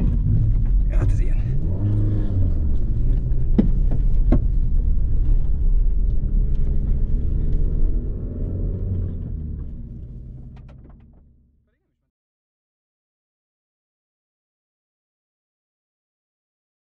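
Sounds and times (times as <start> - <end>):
car engine running at low revs: 0.0 - 11.9.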